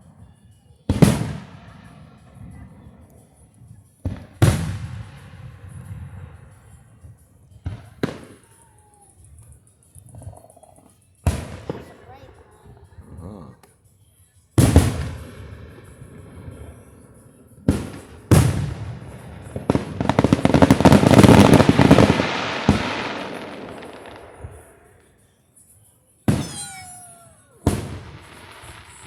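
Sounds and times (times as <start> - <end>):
firework crackle: 14.6 - 25.7, 26.3 - 29.0
firework bangs: 17.7 - 25.0, 26.3 - 29.0
falling firework whistle: 26.3 - 29.0.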